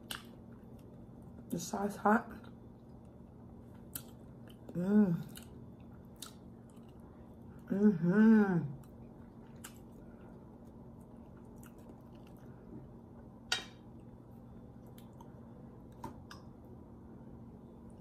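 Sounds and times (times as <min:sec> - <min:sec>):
person chewing: 0:00.0 - 0:01.0, 0:02.8 - 0:07.7, 0:08.8 - 0:13.3, 0:13.9 - 0:16.5.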